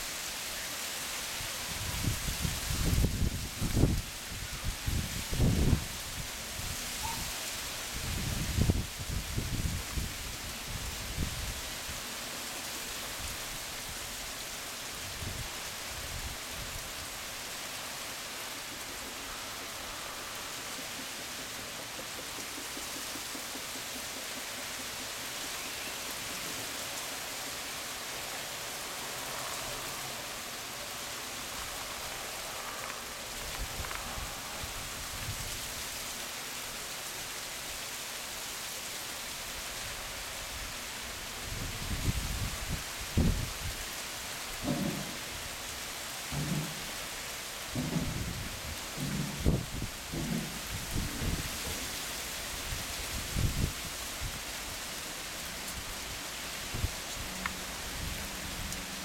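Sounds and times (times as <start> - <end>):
steady rain falling: 0.0 - 59.0
wind rumble on microphone: 1.6 - 7.3, 7.9 - 11.6, 31.6 - 36.0, 41.4 - 43.8, 47.8 - 54.4, 56.7 - 58.8.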